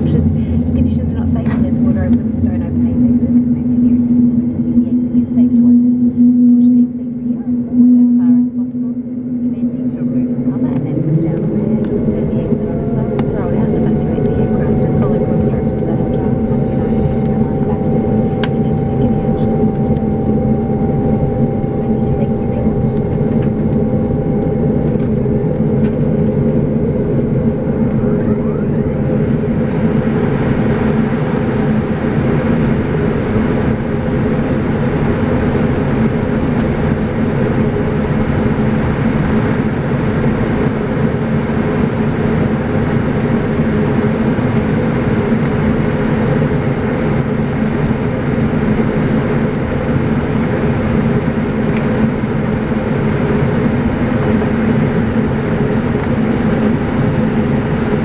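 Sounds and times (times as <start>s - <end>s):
turboprop cabin drone: 0.0s - 58.0s.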